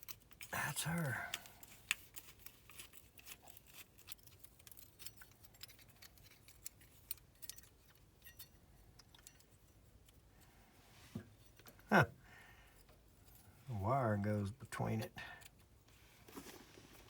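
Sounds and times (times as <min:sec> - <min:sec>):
small parts clicking and tapping: 0:00.0 - 0:10.5, 0:15.4 - 0:15.7.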